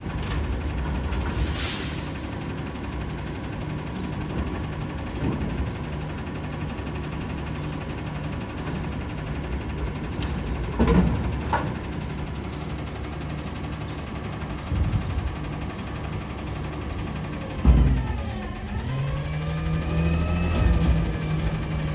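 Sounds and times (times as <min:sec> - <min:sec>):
garbage truck engine idling: 0:00.0 - 0:21.9.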